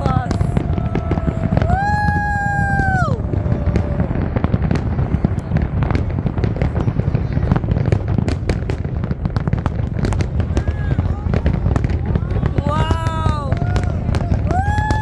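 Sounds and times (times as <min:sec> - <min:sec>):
low rumble: 0:00.0 - 0:07.1
fireworks crackling pops: 0:00.0 - 0:15.0.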